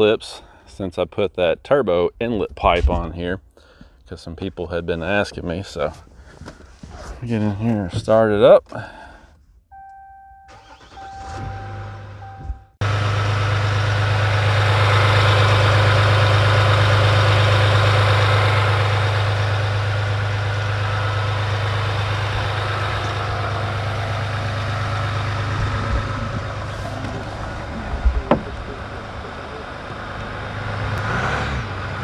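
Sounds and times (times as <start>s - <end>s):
diesel engine starting and idling: 9.7s - 32.0s
short knocks: 28.0s - 28.7s.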